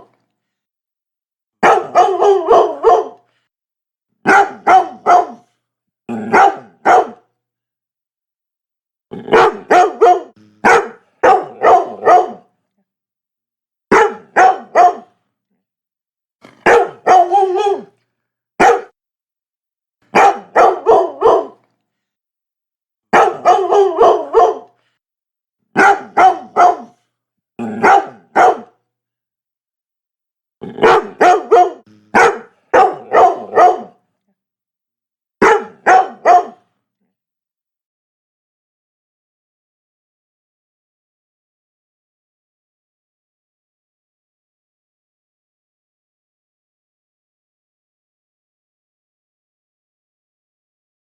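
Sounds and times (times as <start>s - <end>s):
dog barking: 1.6s - 3.3s, 4.3s - 7.3s, 9.3s - 12.5s, 13.9s - 15.2s, 16.5s - 18.0s, 18.6s - 19.0s, 20.1s - 21.6s, 23.1s - 24.8s, 25.8s - 27.0s, 27.6s - 28.8s, 30.7s - 34.0s, 35.4s - 36.7s.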